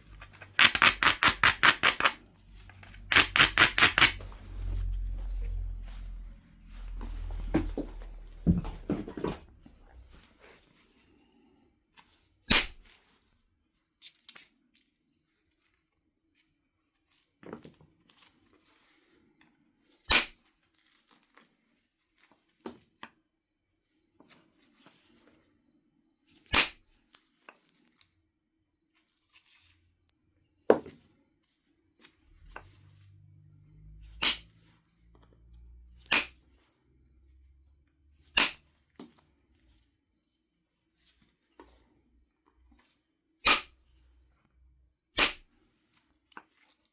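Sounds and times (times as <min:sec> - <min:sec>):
low rumble: 0:04.3 - 0:07.5.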